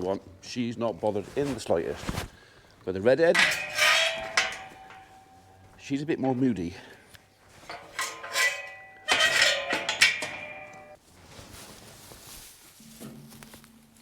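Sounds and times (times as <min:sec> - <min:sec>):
metal gates clanging: 0:03.2 - 0:11.0.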